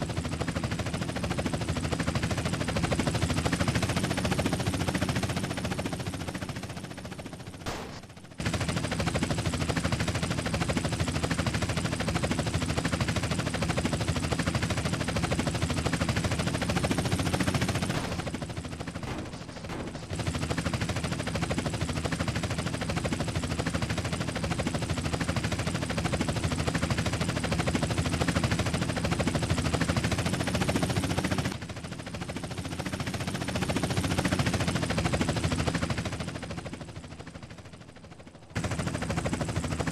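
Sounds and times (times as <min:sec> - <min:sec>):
rapid automatic gunfire: 0:00.4 - 0:24.6.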